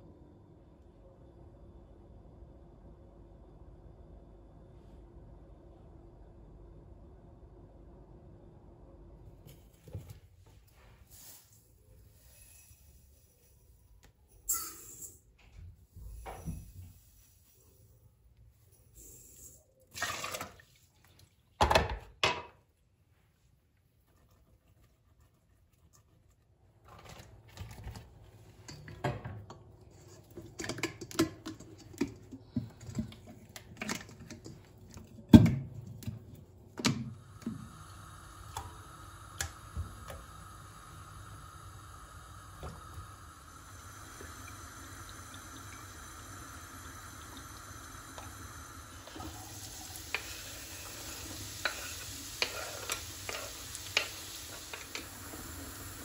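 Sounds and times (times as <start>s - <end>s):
utensils and dishes clinking: 14.4s - 15.3s.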